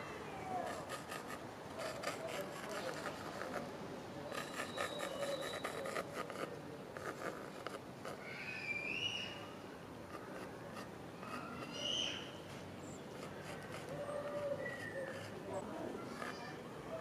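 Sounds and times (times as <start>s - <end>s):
pencil scratching on canvas: 0.6s - 8.2s, 10.1s - 11.7s, 13.1s - 17.0s
faint bird call: 8.1s - 9.6s, 11.2s - 12.4s.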